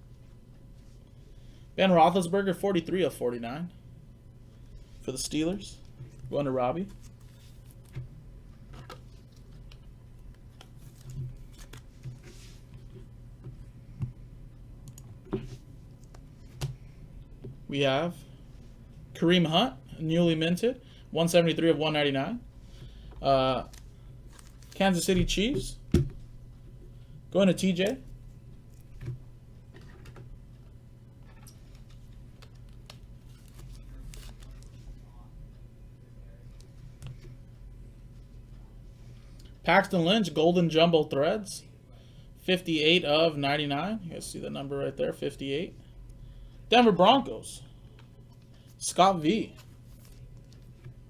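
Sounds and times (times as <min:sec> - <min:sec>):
steady low hum: 0:00.0 - 0:51.0
cards rustling and clicking: 0:08.6 - 0:12.8, 0:23.6 - 0:24.8, 0:31.4 - 0:35.0, 0:49.3 - 0:51.0
soft rustle: 0:10.8 - 0:13.0.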